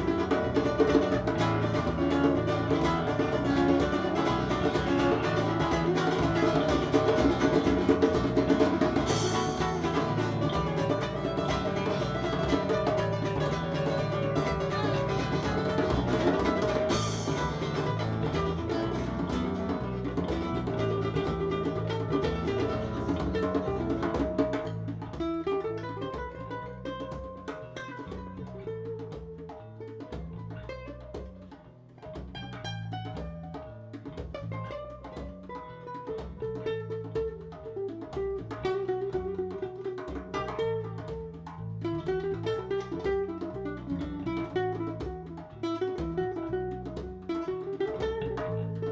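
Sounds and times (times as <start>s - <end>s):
strummed acoustic guitar: 0.0s - 26.3s
bass: 0.0s - 48.9s
percussion: 0.0s - 48.9s.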